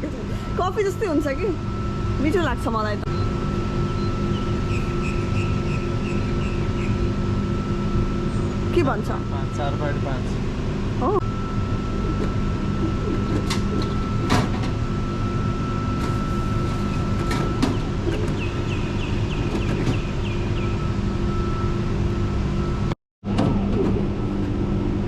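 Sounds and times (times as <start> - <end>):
vending machine hum and whine: 0.0 - 25.0
chirping ticks: 3.0 - 7.1, 12.8 - 14.1, 17.7 - 20.8.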